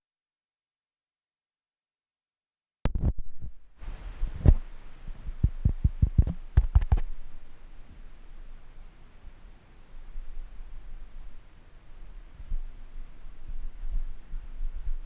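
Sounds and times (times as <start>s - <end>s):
microphone noise floor hiss: 2.9s - 15.0s
sharp clicks and knocks: 5.3s - 7.1s.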